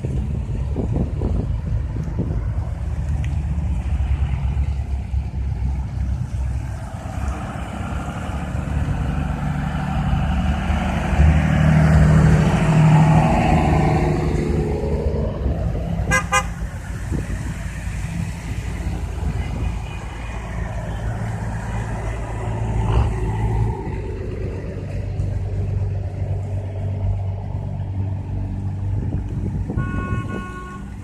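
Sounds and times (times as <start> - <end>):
trucks driving past: 0.0 - 31.0
truck horn toots: 16.1 - 16.6, 29.7 - 31.0.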